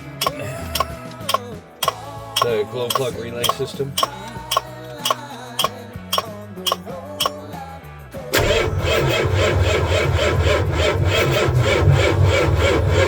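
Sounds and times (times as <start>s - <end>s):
diesel engine cranking: 0.0s - 7.4s, 8.4s - 13.0s.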